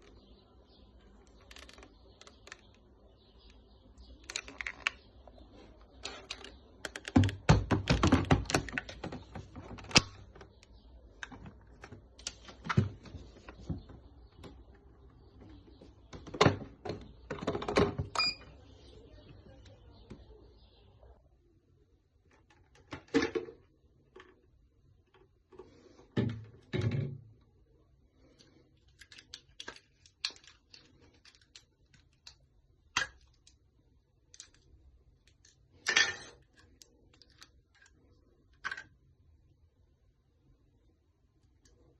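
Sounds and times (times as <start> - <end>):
small hard objects clicking: 1.2 - 5.2.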